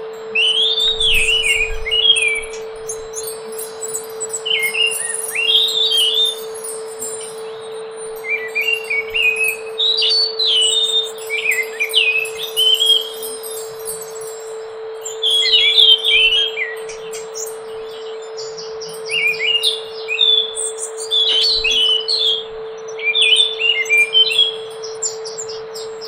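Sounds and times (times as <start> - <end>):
low hum: 0.0 - 20.0
thrush singing: 0.0 - 22.6.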